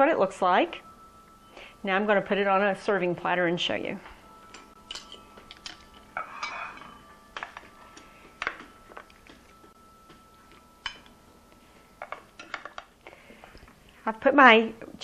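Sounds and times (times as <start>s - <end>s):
utensil clinking and scraping on dish: 4.5s - 13.7s.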